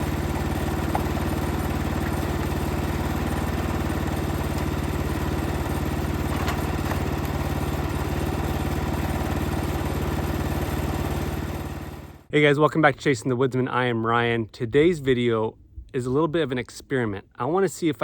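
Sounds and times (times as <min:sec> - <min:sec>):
small engine idling: 0:00.0 - 0:12.3.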